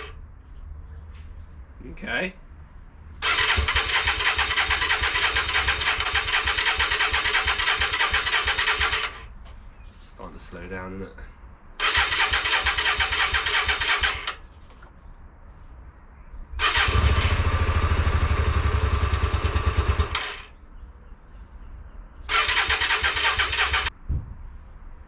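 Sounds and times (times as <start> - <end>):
motorcycle electric starter cranking: 3.2 - 9.3, 11.8 - 14.4, 16.6 - 20.5, 22.3 - 23.9.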